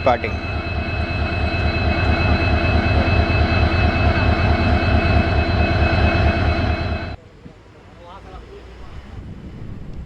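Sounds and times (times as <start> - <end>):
diesel locomotive engine idling: 0.0 - 7.2
high whine: 0.0 - 7.2.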